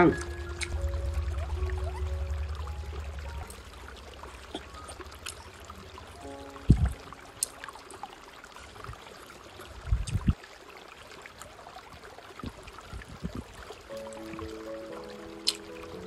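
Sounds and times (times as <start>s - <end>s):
background music: 0.0s - 7.9s, 13.9s - 16.0s
faint steady hiss: 0.0s - 16.0s.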